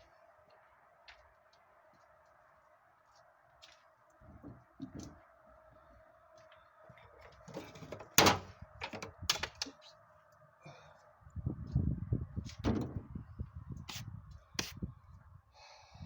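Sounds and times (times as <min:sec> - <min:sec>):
faint steady hum: 0:00.0 - 0:12.4
car parts and tools clunking: 0:04.2 - 0:05.2, 0:07.1 - 0:09.8, 0:12.5 - 0:13.1.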